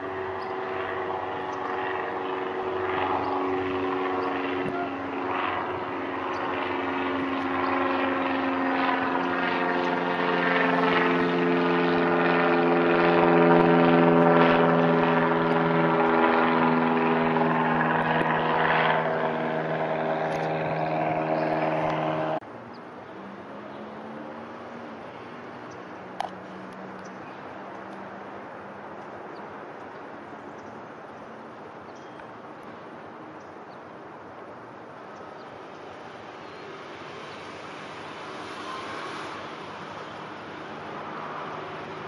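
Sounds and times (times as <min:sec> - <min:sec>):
propeller aircraft droning overhead: 0:00.0 - 0:42.0.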